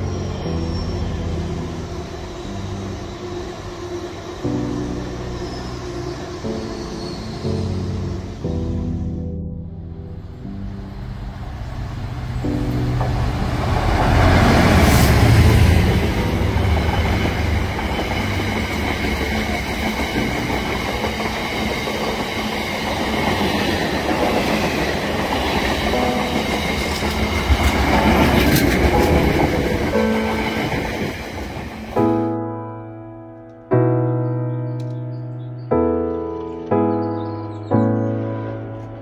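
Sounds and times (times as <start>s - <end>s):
diesel locomotive engine: 10.1s - 32.2s.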